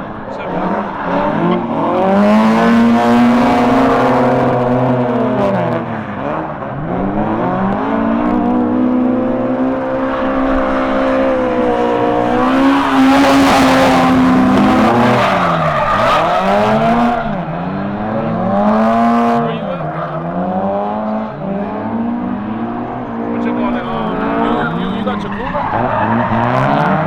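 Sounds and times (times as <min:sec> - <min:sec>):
car engine revving: 0:00.0 - 0:27.0
tyres screeching: 0:10.0 - 0:17.4, 0:23.7 - 0:26.7.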